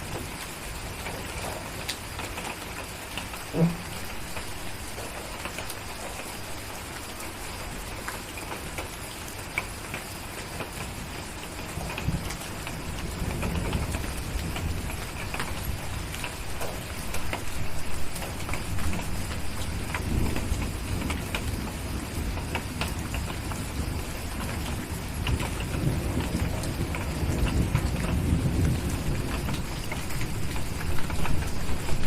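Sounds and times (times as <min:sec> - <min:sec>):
steady rain: 0:00.0 - 0:32.0
distant thunder rumble: 0:03.4 - 0:05.5, 0:11.7 - 0:32.0.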